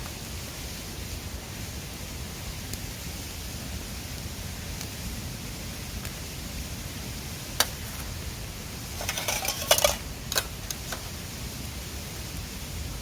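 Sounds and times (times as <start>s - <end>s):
cookware clinking and clattering: 9.0s - 10.0s.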